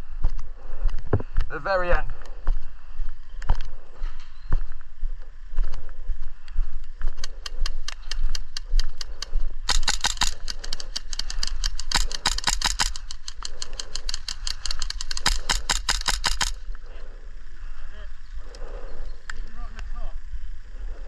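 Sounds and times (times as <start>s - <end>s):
airsoft guns firing: 9.6s - 16.7s.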